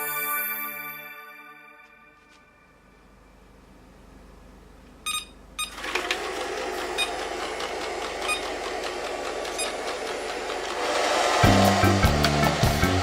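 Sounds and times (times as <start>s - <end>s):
robot vacuum beeping: 5.1s - 10.2s
robot vacuum motors running: 5.7s - 13.0s.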